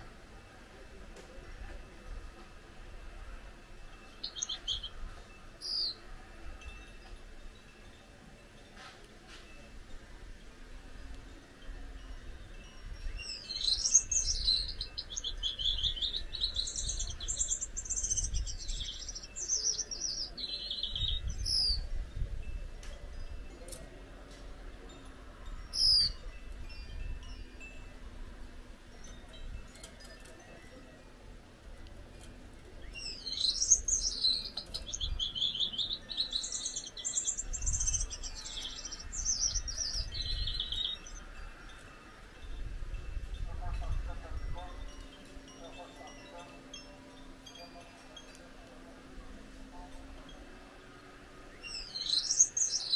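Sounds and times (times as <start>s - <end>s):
finch singing buzzy notes: 4.0s - 6.1s, 12.8s - 22.0s, 32.8s - 41.8s, 50.2s - 52.9s.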